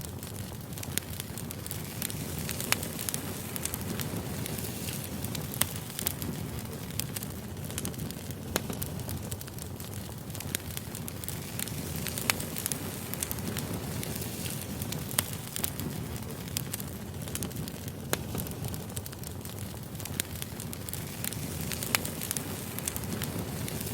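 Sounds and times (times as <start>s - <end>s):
fire crackling and popping: 0.0s - 23.9s
low rush of campfire flames: 0.0s - 23.9s.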